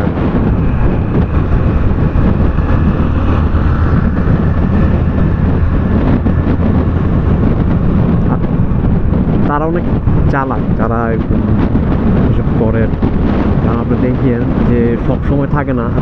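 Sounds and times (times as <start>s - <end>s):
motorcycle engine running: 0.0s - 14.0s
wind rushing over microphone: 0.0s - 16.0s.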